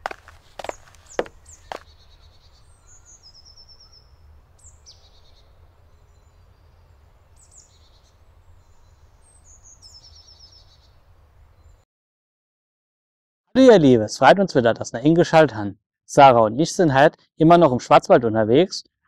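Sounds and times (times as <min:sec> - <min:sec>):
songbirds chirping and trilling: 0:00.0 - 0:11.8.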